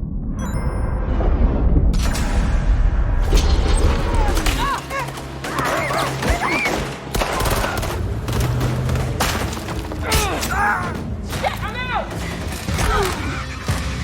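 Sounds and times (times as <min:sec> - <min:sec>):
action film music: 0:00.0 - 0:14.0
gunshots: 0:03.2 - 0:14.0.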